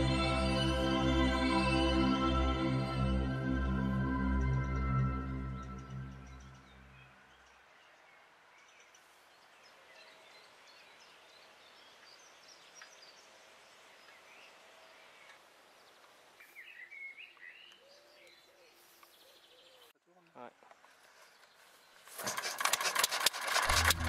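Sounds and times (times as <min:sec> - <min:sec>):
small birds chirping: 0:05.6 - 0:22.1.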